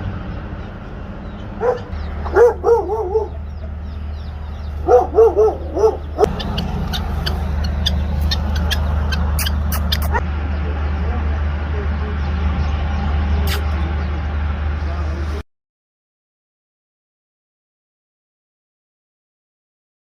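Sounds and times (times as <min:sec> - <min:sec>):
low hum: 0:00.0 - 0:15.4
animal calling: 0:01.3 - 0:12.7.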